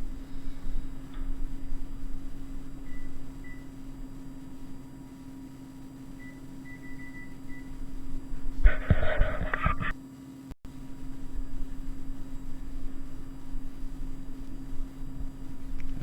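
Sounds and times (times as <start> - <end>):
low hum: 0.0 - 10.0, 10.7 - 16.0
oven panel beeps: 2.8 - 3.8, 6.2 - 7.9.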